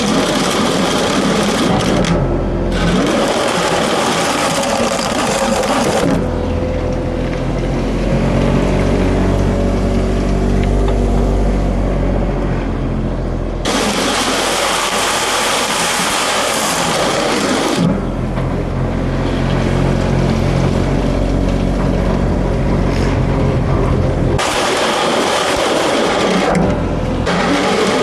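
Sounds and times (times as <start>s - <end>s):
loader engine running: 0.0s - 28.0s
loud even rushing noise: 22.1s - 28.0s.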